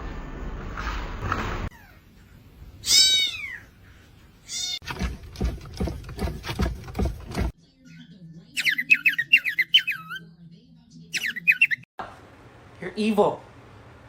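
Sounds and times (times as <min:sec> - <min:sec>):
bird squawking: 0:02.3 - 0:03.7, 0:11.2 - 0:11.8
cat meowing: 0:02.8 - 0:03.7, 0:04.5 - 0:04.8.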